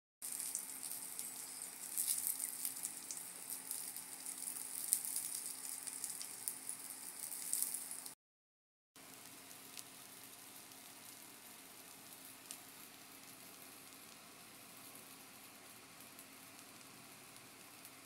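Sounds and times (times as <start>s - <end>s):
fried rice sizzling in pan: 0.2s - 8.2s, 9.0s - 18.0s
sausages sizzling in oil: 0.2s - 8.2s, 9.0s - 18.0s
crackling oil pops: 0.3s - 8.2s.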